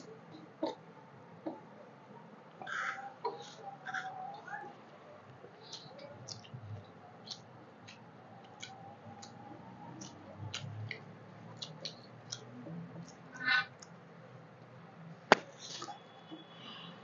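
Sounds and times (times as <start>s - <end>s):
mouths chewing wetly: 2.6s - 14.0s.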